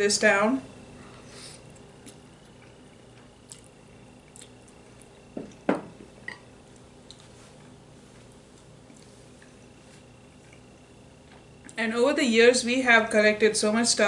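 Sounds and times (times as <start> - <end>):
soft eating clicks: 1.7 - 7.8, 10.2 - 11.8.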